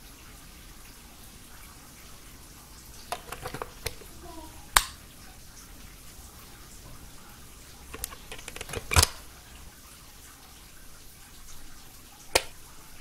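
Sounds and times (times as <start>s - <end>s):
handling knocks and small clicks: 3.1s - 4.2s, 7.9s - 9.3s, 12.4s - 12.6s
wall power switch click: 8.0s - 9.2s, 12.4s - 12.6s.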